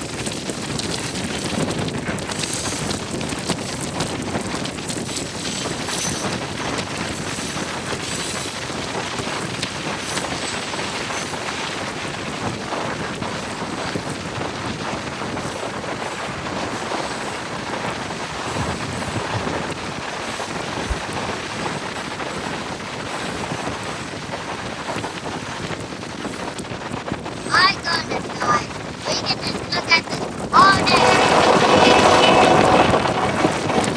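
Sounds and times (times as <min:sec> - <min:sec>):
rushing wind: 0:00.0 - 0:33.9
car road noise: 0:30.9 - 0:33.9.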